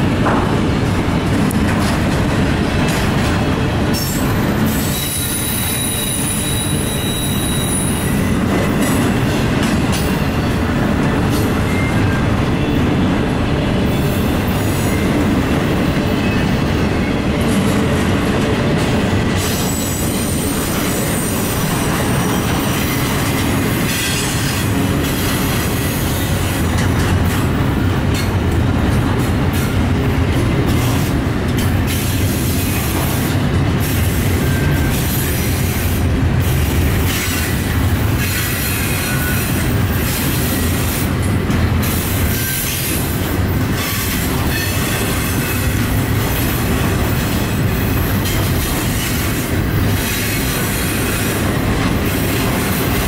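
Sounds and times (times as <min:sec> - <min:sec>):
steel wheels rumbling on rail: 0:00.0 - 0:53.0
high thin wheel squeals: 0:04.0 - 0:08.1.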